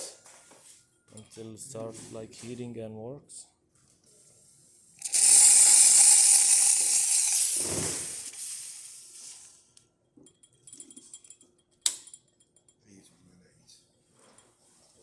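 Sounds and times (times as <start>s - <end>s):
steam wand hissing: 5.0s - 9.6s.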